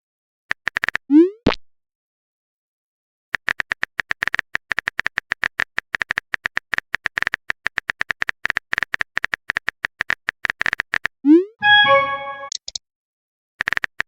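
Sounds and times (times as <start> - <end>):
keyboard typing clicks: 11.6 - 12.8.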